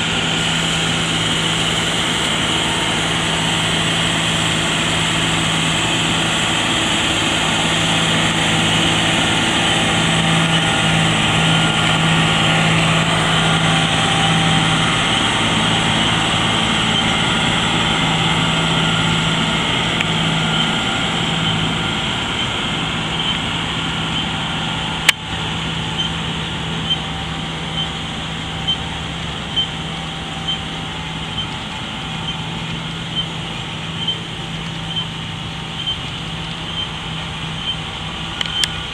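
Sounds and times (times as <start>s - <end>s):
tractor engine humming: 0.0s - 38.9s
light ticking: 32.2s - 38.8s.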